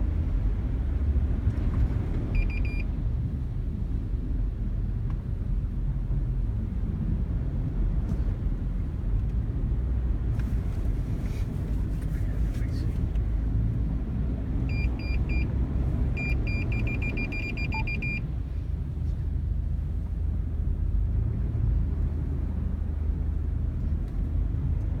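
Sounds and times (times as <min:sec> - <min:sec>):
car rumbling on the road: 0:00.0 - 0:25.0
short high electronic beeps: 0:16.2 - 0:18.2.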